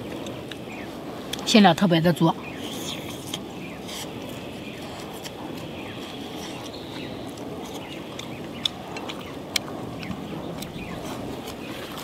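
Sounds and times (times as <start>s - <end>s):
chewing dumpling with crunches: 2.6s - 12.0s.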